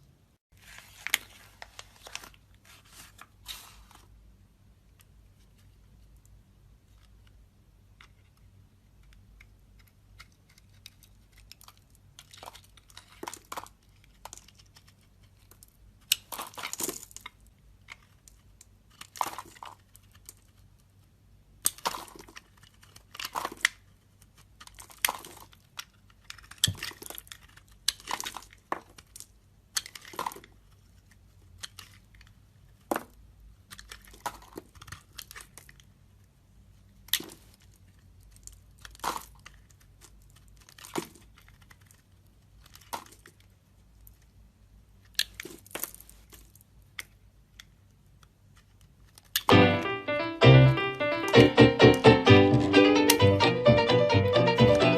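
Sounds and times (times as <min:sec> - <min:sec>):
knife carving soap: 0:07.8 - 0:32.1, 0:33.7 - 0:35.8.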